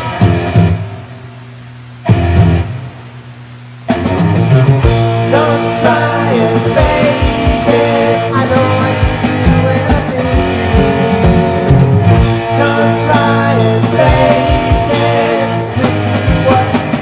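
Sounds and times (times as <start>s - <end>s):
rock band playing: 0.0s - 1.2s, 2.0s - 3.1s, 3.8s - 17.0s
guitar chord ringing: 0.0s - 17.0s
guitar playing bending notes: 3.9s - 17.0s.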